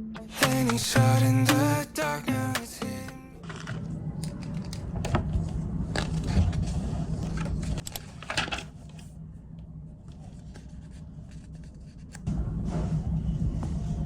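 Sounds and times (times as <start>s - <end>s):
rustling and clicks of handling: 3.4s - 9.2s.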